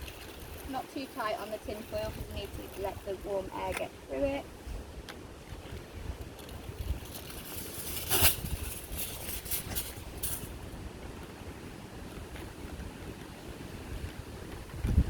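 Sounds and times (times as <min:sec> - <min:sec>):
aluminium foil crinkling: 0:00.0 - 0:03.8, 0:06.3 - 0:10.6
wind rumble on microphone: 0:00.0 - 0:15.0.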